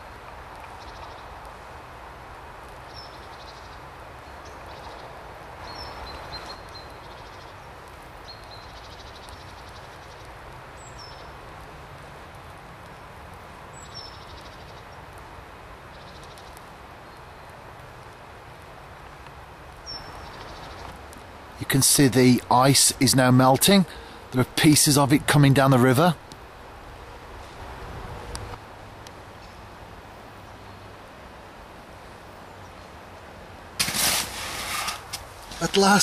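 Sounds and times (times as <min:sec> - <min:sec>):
small birds chirping and trilling: 0:02.8 - 0:11.4
outdoor rushing noise: 0:33.8 - 0:36.0.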